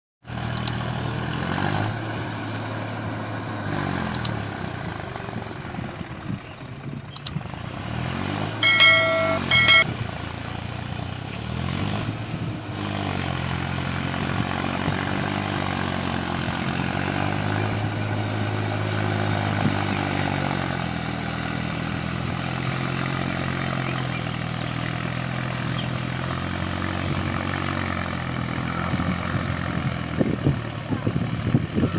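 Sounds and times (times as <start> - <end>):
vehicle horn: 8.6 - 9.9
farm vehicle engine revving: 11.4 - 31.9.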